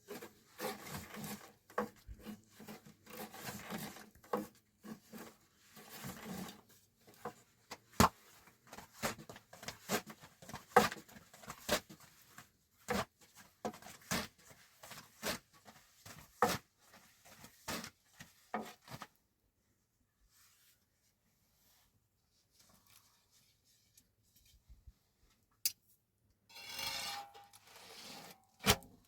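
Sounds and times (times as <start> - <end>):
light rubbing: 26.5 - 28.4.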